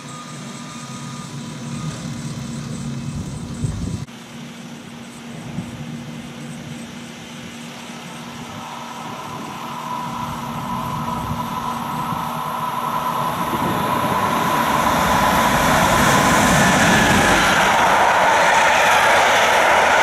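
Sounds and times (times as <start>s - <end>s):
train wheels rumbling on rails: 0.0s - 4.1s, 5.1s - 20.0s
electric locomotive whine: 0.0s - 20.0s.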